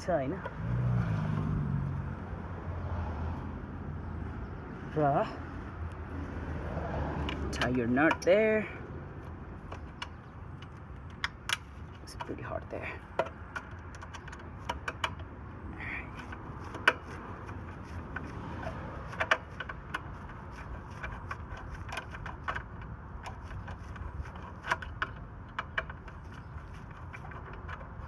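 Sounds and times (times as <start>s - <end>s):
tool clicking on metal nut: 7.2s - 8.4s, 9.7s - 12.4s, 13.1s - 15.3s, 16.1s - 28.0s.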